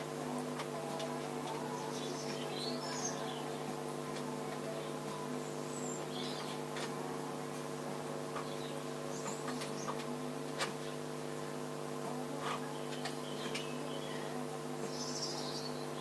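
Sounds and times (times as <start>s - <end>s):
background hum: 0.0s - 16.0s
birds chirping: 1.5s - 3.6s, 4.7s - 6.7s, 8.4s - 10.1s, 12.6s - 16.0s.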